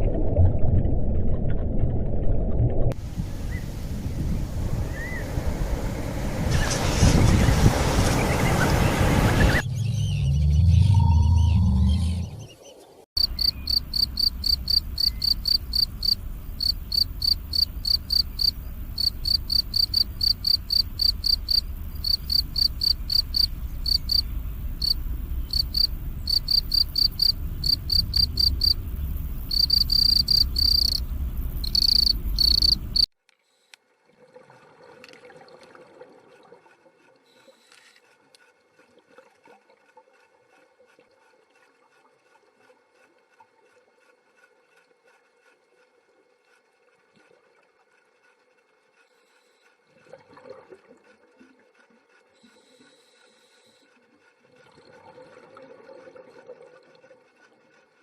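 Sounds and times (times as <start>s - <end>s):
low rumble: 0.0s - 12.5s, 13.4s - 33.1s
cricket chirping: 13.2s - 33.1s.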